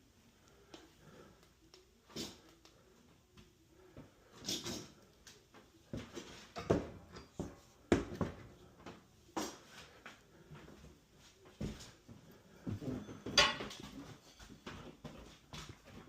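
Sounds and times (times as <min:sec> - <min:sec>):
tools knocking and clattering: 0:13.1 - 0:14.5.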